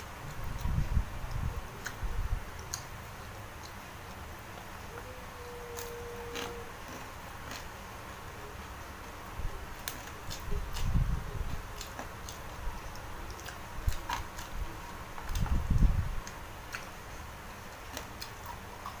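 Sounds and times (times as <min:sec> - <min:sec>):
mouth and chewing clicks: 0:00.2 - 0:02.9, 0:03.6 - 0:04.7, 0:05.8 - 0:07.7, 0:09.8 - 0:17.0, 0:17.7 - 0:19.0.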